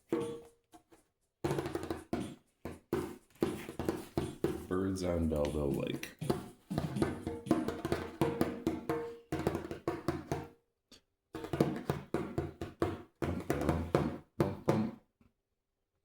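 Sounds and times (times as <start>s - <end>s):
hand tapping djembe: 1.5s - 4.7s, 5.3s - 10.5s, 11.4s - 15.0s.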